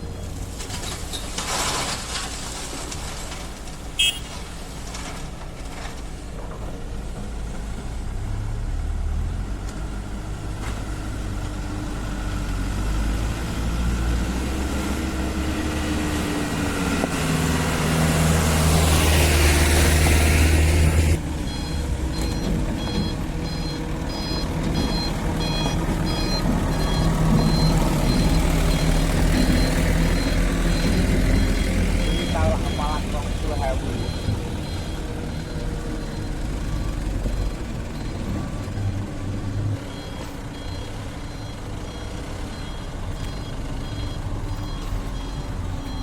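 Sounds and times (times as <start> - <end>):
excavator diesel engine under load: 0.0 - 46.0
reversing alarm beeping: 4.0 - 4.3, 21.1 - 46.0.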